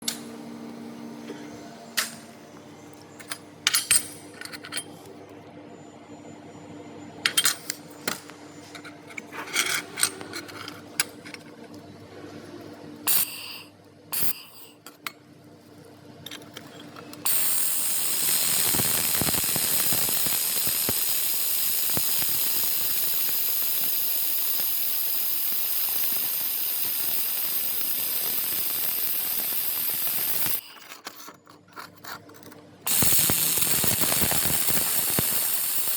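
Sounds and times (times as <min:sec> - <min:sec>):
laser welder hissing: 0:17.3 - 0:30.6, 0:32.9 - 0:35.9.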